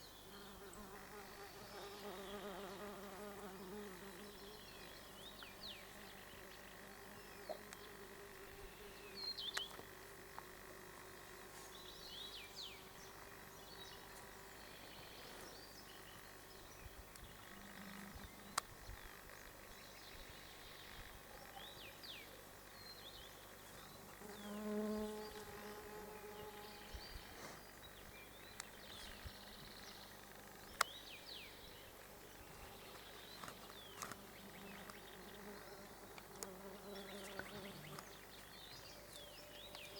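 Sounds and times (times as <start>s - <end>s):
flying insect buzzing: 0.3s - 4.6s, 24.1s - 26.9s
small birds chirping: 11.5s - 39.9s.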